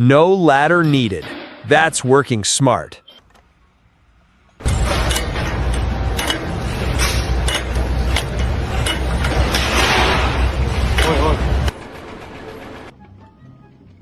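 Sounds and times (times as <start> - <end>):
machine humming: 4.4 - 12.9
metallic knocks and clinks: 4.6 - 9.7.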